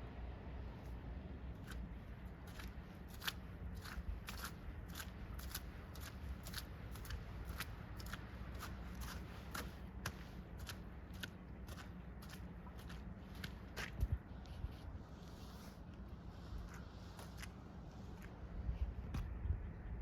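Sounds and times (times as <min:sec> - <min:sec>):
footsteps crunching in snow: 0:02.5 - 0:18.4.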